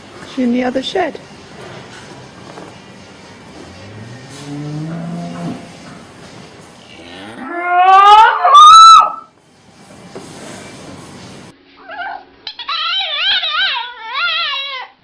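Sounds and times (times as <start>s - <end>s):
cow mooing: 3.7s - 5.9s, 6.9s - 9.2s.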